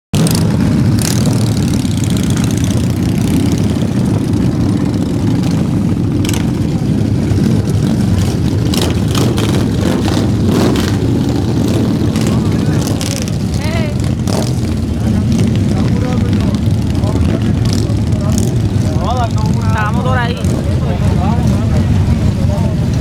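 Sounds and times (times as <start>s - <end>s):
motorcycle engines rumbling: 0.2s - 23.0s.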